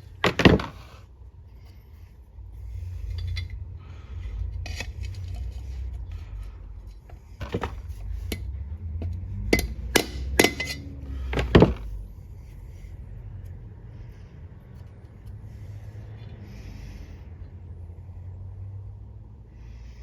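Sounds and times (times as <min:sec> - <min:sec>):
hammer tapping metal tool: 0:09.0 - 0:11.7.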